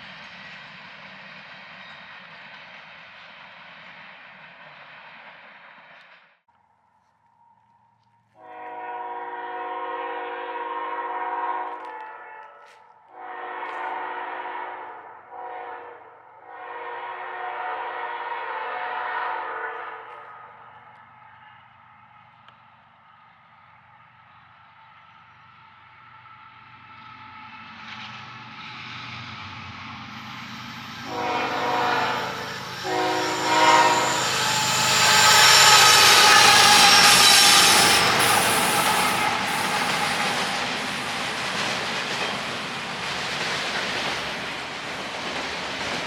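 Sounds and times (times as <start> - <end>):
train rumble: 0.0 - 6.3, 7.4 - 46.0
locomotive air horn blasts: 8.4 - 20.2, 31.0 - 40.6.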